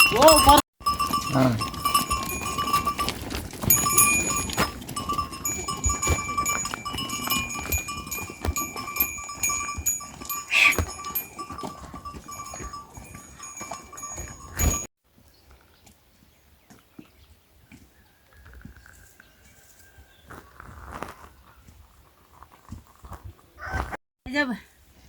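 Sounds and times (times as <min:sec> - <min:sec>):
livestock bells clinking: 0:00.0 - 0:14.9.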